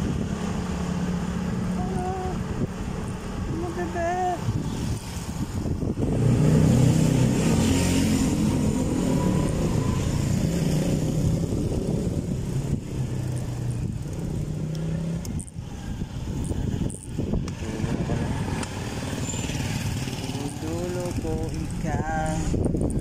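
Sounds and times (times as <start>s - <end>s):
road noise: 0.0s - 23.0s
wind: 0.0s - 23.0s.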